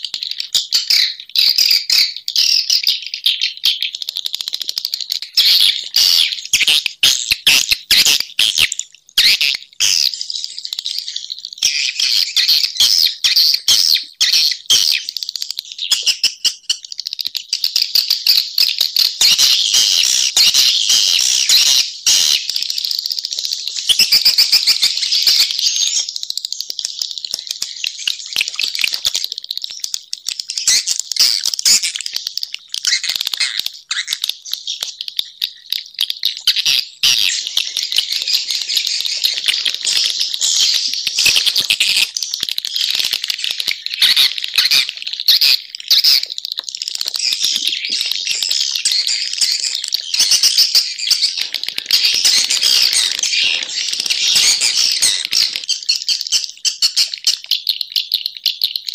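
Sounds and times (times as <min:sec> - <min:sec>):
swiftlets twittering: 0:33.7 - 0:57.2.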